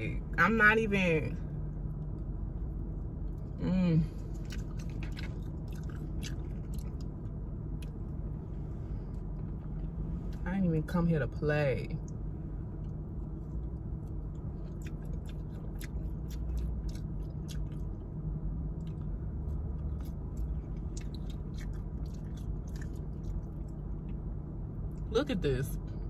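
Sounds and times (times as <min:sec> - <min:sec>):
steady low hum: 0:00.0 - 0:26.0
person chewing fried food: 0:04.2 - 0:10.4, 0:12.7 - 0:25.0.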